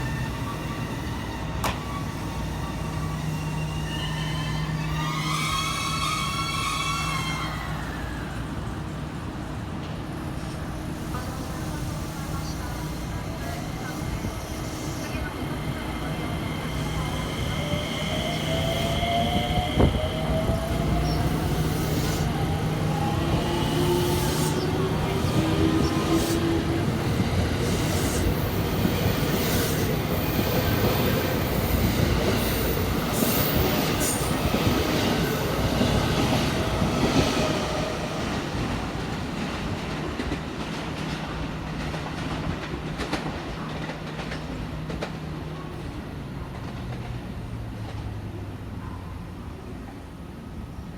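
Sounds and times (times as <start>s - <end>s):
train wheels rumbling and clacking: 0.0s - 8.3s, 9.7s - 48.5s
high wheel squeals: 0.0s - 8.4s.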